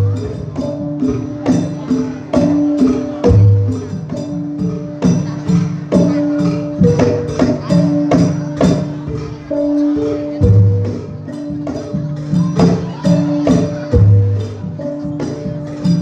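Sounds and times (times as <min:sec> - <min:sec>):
drum and percussion strokes: 0:00.0 - 0:16.0
gamelan metal instruments and gongs: 0:00.0 - 0:16.0.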